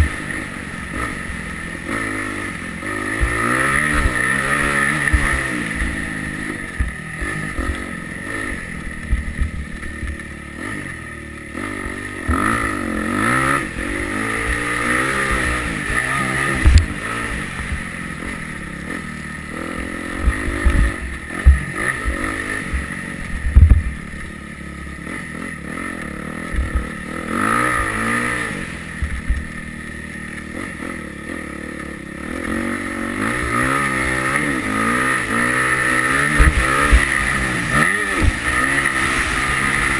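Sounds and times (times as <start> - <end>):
motocross bike engine revving: 0.0 - 39.9
sharp low thumps: 9.0 - 10.2, 20.1 - 24.3, 26.5 - 27.0, 29.0 - 29.4, 36.0 - 39.9.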